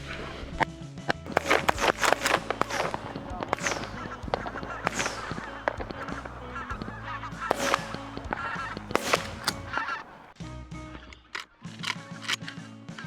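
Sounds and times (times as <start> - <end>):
geese honking: 1.3 - 10.4.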